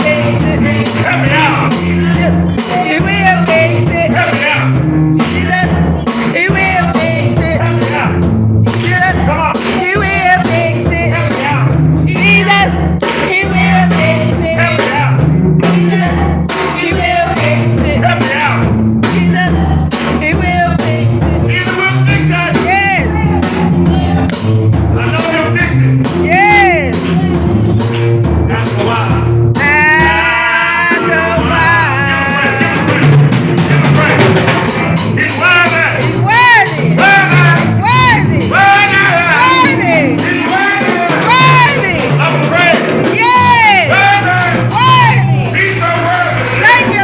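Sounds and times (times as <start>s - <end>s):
gospel band playing: 0.0s - 47.0s
person singing: 0.0s - 47.0s.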